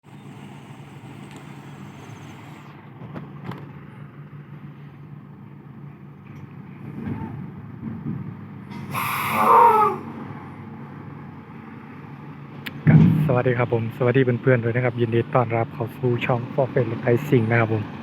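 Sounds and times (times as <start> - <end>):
heavy truck engine idling: 0.0 - 2.8.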